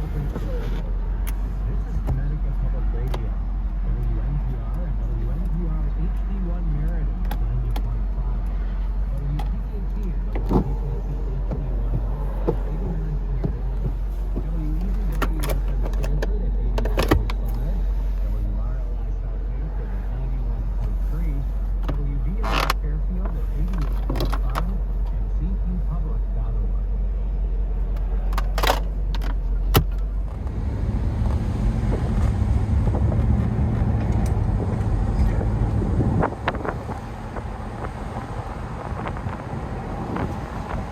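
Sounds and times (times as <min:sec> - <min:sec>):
radio voice talking: 0:00.0 - 0:27.0
car engine drone: 0:00.0 - 0:40.9
road noise: 0:00.0 - 0:40.9.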